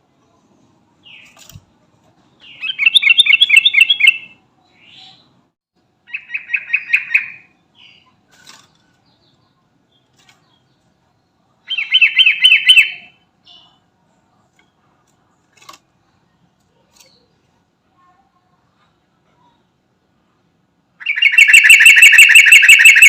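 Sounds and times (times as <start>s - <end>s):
faint bird chips: 1.0s - 5.3s, 6.8s - 11.0s, 11.6s - 17.6s
bird calling rapid bright notes: 21.0s - 23.0s.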